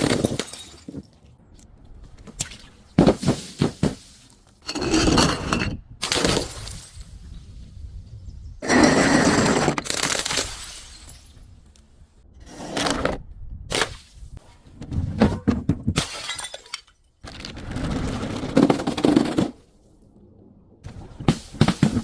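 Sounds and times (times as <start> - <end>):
glass breaking and crunching: 0.0 - 1.1, 9.8 - 11.4, 16.0 - 17.1.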